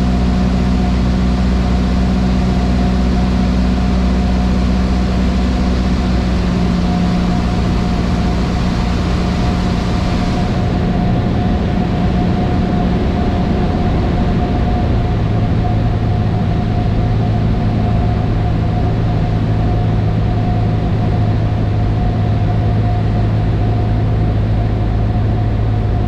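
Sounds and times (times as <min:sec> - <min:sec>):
airplane engine and propeller droning: 0:00.0 - 0:26.0.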